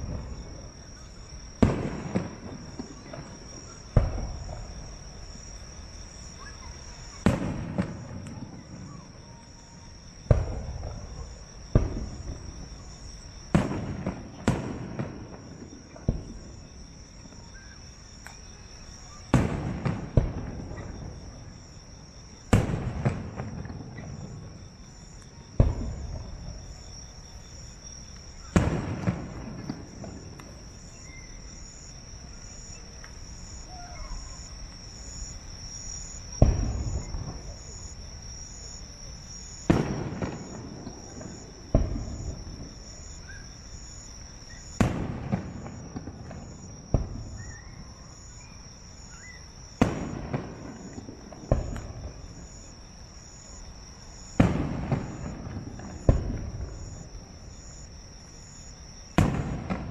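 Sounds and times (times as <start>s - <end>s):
firework shells booming: 0.0s - 5.4s, 7.2s - 8.9s, 10.2s - 16.6s, 19.3s - 21.4s, 22.4s - 31.9s, 32.5s - 47.7s, 49.7s - 52.6s, 54.2s - 57.8s, 59.1s - 59.9s
insects trilling: 0.0s - 59.9s.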